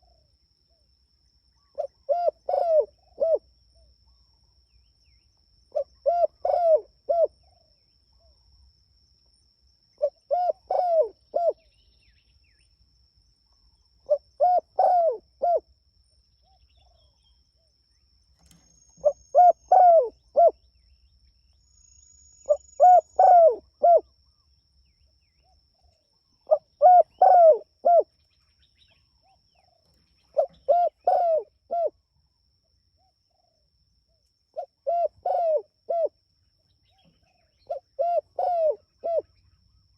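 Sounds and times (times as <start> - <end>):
dove cooing: 1.7 - 3.4, 5.7 - 7.7, 10.0 - 11.7, 14.0 - 15.7, 18.5 - 20.6, 22.5 - 24.1, 26.4 - 28.1, 29.2 - 32.0, 34.6 - 36.2, 37.0 - 39.4.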